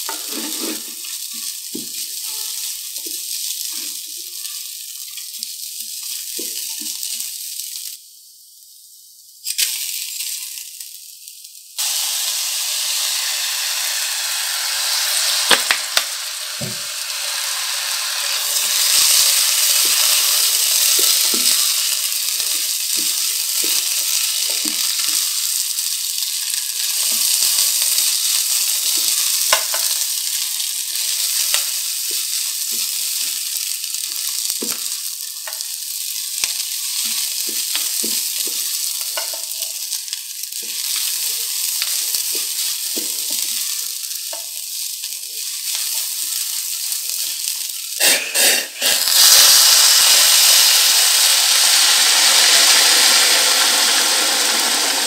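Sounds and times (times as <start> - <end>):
rice and lentils sizzling: 0.0 - 55.0.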